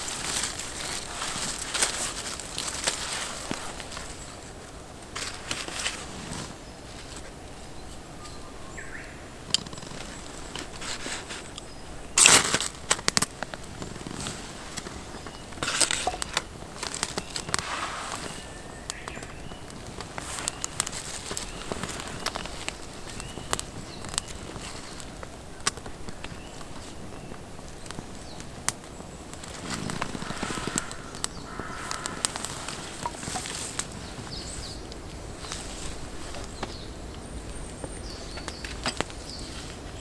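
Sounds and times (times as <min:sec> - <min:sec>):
campfire crackling and popping: 0:09.4 - 0:40.0.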